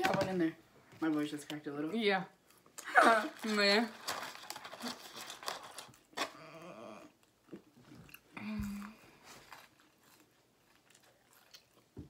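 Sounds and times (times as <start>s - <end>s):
people chewing and biting food: 5.6s - 12.0s.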